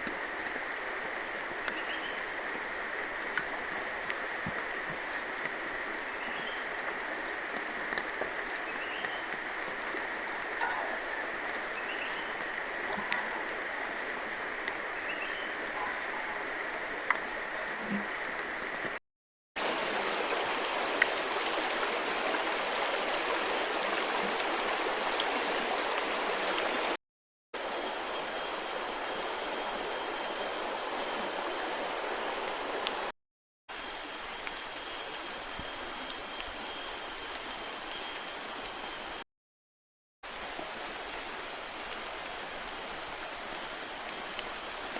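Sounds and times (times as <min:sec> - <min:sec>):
river rushing: 0:00.0 - 0:19.0, 0:19.6 - 0:26.9.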